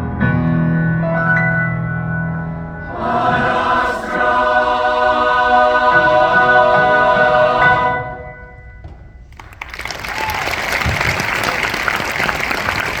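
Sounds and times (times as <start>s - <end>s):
choir holding a chord: 2.7s - 8.6s
audience applause: 9.3s - 13.0s.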